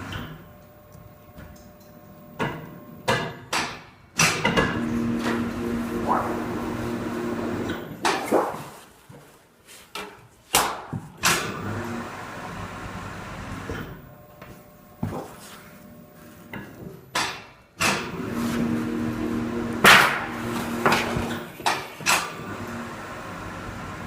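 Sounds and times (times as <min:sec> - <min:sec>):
steady hum: 0:04.8 - 0:08.8.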